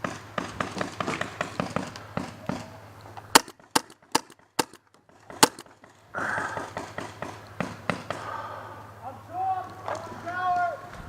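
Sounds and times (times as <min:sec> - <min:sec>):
paintball marker shots: 0:00.0 - 0:05.7.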